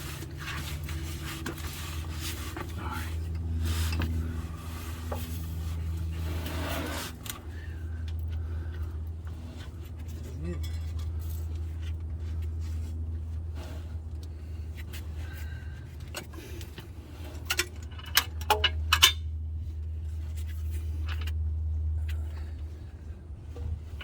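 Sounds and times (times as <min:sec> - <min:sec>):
steady low hum: 0:00.0 - 0:24.0
hand tools clinking on metal: 0:10.0 - 0:11.6.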